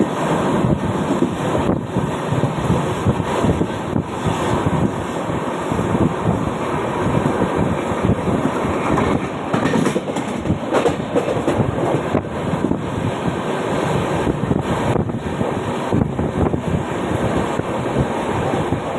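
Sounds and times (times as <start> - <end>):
train wheels clattering on rails: 7.1 - 18.9.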